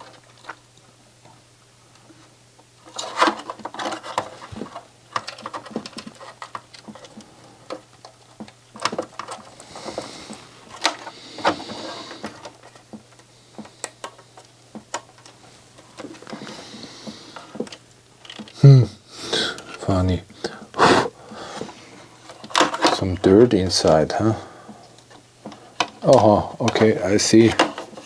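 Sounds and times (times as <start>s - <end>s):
hands handling small parts: 17.4s - 18.6s.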